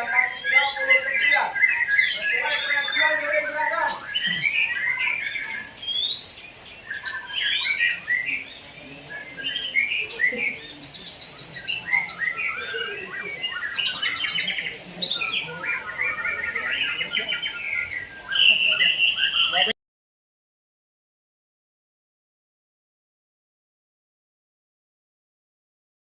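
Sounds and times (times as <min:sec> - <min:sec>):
songbirds singing and trilling: 0:00.0 - 0:19.8.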